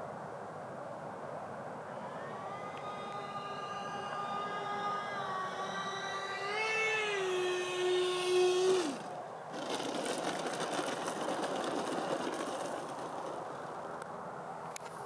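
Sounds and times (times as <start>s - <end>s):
electric ducted-fan motors whining: 1.0s - 14.9s.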